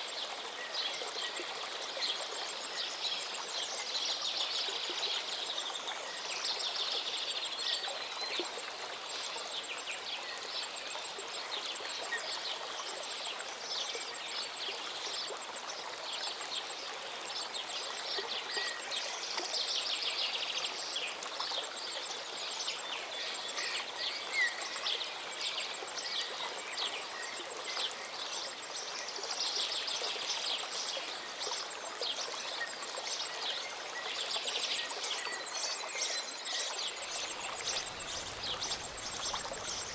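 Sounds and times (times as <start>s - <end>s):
birds chirping and trilling: 37.1s - 39.9s
waterfall running: 37.1s - 39.9s.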